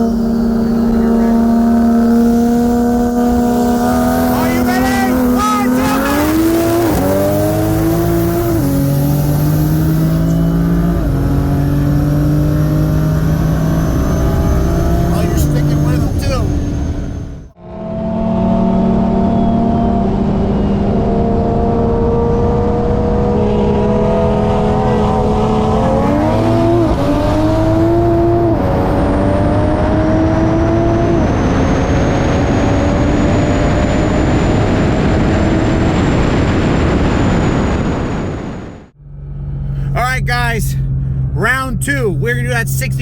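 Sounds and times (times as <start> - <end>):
car engine revving: 0.0 - 37.1, 37.8 - 43.0.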